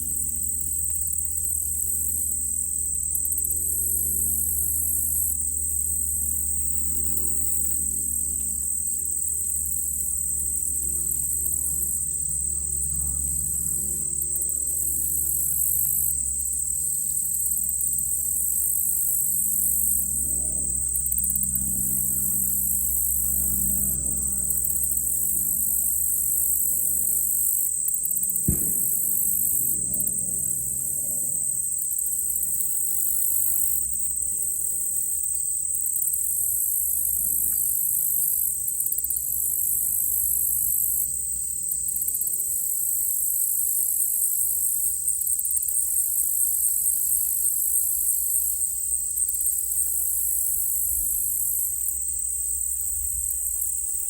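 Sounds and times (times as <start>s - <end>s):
insect trill: 0.0s - 54.0s
pulsing insect chirps: 0.0s - 54.0s
distant gunshot: 28.4s - 30.2s.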